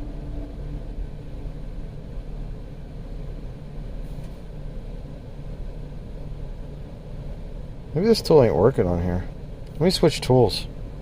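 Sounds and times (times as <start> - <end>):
car engine idling: 0.0 - 11.0
faint short hiss: 4.0 - 4.5.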